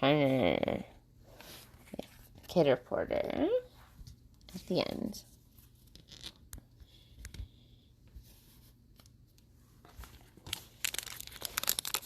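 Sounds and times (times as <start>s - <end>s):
wrappers rustling: 10.0s - 12.0s.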